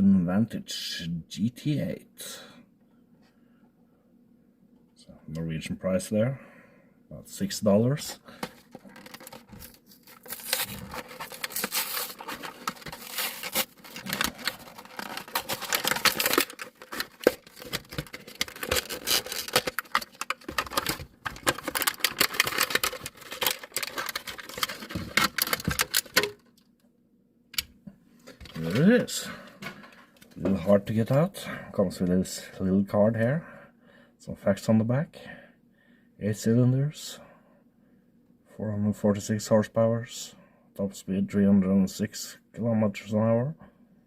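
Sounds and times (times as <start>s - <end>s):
packaging rustling and tearing: 8.3s - 26.5s.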